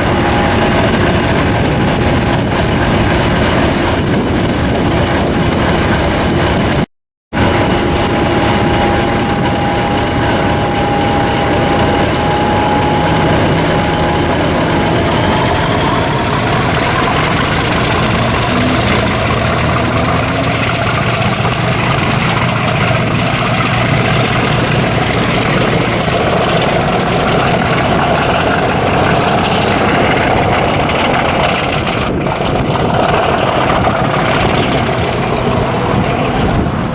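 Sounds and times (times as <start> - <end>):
diesel locomotive engine running: 0.0 - 36.9
high whine rising in pitch: 7.4 - 30.6.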